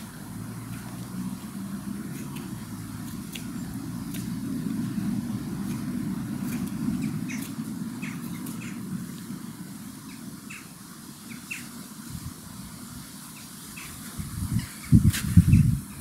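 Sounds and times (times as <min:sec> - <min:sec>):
small birds chirping: 0:00.0 - 0:12.0, 0:13.1 - 0:16.0
steady low rumble: 0:00.0 - 0:16.0.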